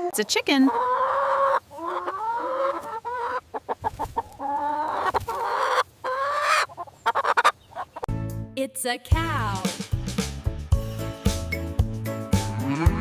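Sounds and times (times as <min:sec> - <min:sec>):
chickens clucking: 0:00.0 - 0:08.1.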